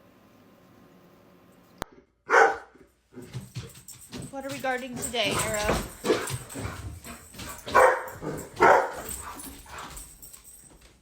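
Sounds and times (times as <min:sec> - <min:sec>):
dog barking: 0:02.3 - 0:02.8, 0:05.4 - 0:06.8, 0:07.4 - 0:09.4.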